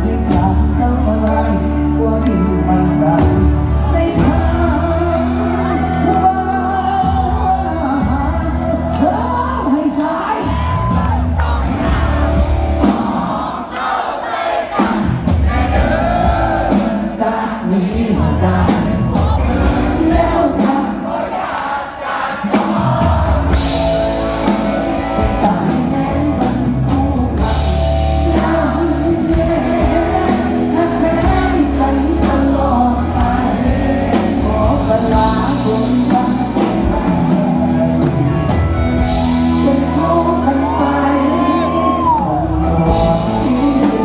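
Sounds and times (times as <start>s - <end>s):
person singing: 0.0s - 12.1s, 22.8s - 44.0s
live band playing: 0.0s - 44.0s.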